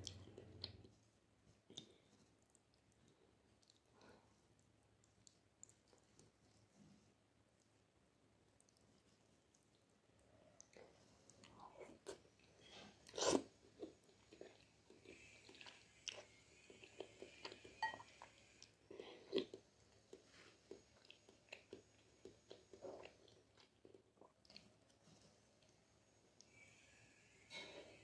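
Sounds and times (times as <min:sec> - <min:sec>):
wet chewing and mouth smacks: 0:01.7 - 0:06.4, 0:08.6 - 0:10.0.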